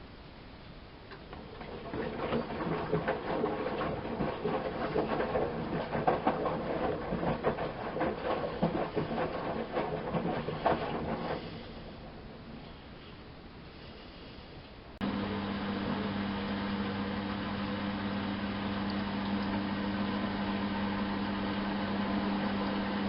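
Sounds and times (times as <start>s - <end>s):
wet laundry and water tumbling: 1.1s - 13.1s, 15.0s - 23.0s
washing machine motor humming: 1.2s - 12.7s, 15.0s - 23.0s.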